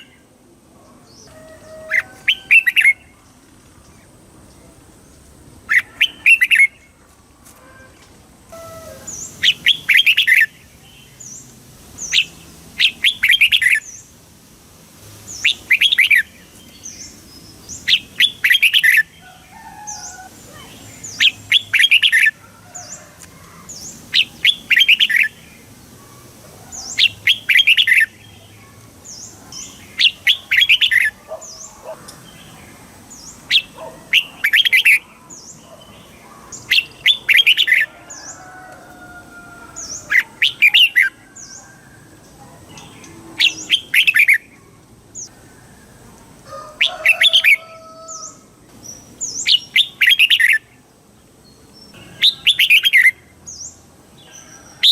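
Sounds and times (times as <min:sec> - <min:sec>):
bird whistled song: 0:01.2 - 0:03.1, 0:12.0 - 0:13.9, 0:15.3 - 0:16.3, 0:49.2 - 0:50.7, 0:52.1 - 0:53.2.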